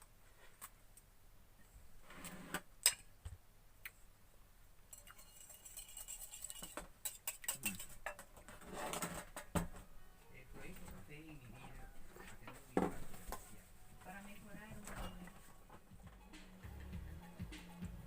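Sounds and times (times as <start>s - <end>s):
dishes and utensils clinking: 4.9s - 9.4s, 14.8s - 15.8s
rustling: 7.6s - 16.0s.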